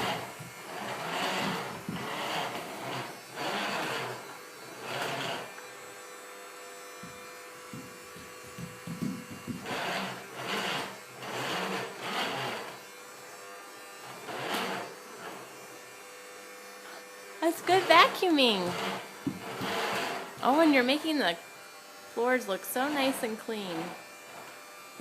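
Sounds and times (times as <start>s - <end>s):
vacuum cleaner motor humming: 0.0s - 25.0s
irregular knocks: 7.0s - 9.9s, 18.7s - 20.5s.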